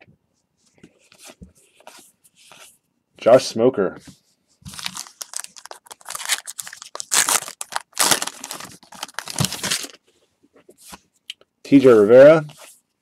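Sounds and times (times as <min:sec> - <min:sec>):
cards and packaging crinkling: 0:04.7 - 0:10.0.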